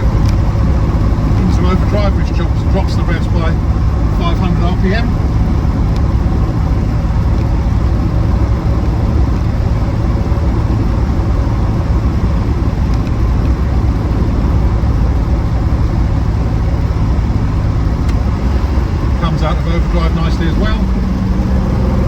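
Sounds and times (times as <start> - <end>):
car engine cruising: 0.0 - 22.0
road noise: 0.0 - 22.0.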